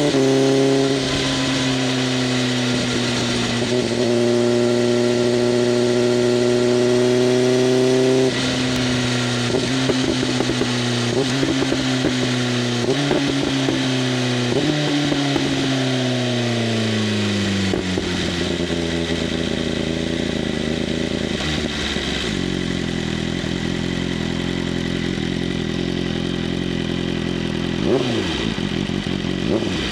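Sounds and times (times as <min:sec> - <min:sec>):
motorcycle throttle blips: 0:00.0 - 0:15.8
motorcycle engine slowing to idle: 0:01.0 - 0:15.9, 0:16.5 - 0:29.9.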